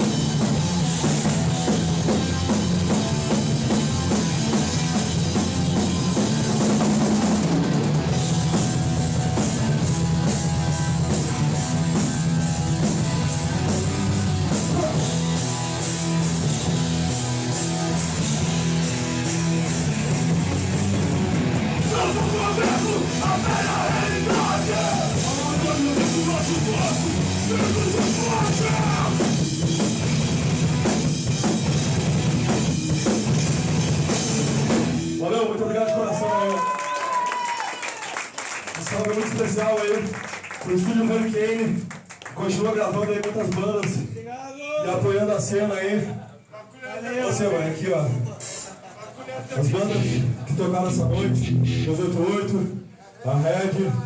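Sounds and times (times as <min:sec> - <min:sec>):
punk band playing live: 0:00.0 - 0:35.4, 0:48.1 - 0:49.0, 0:49.7 - 0:52.0.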